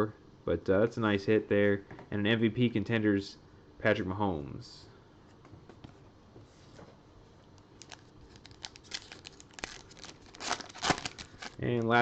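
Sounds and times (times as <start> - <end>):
wrapper crinkling and tearing: 7.8 - 12.0.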